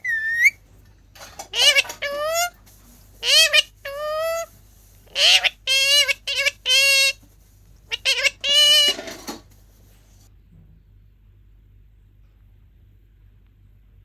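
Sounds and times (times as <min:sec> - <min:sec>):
parrot short pitched calls: 0:00.0 - 0:00.6, 0:05.1 - 0:07.2, 0:07.9 - 0:09.1.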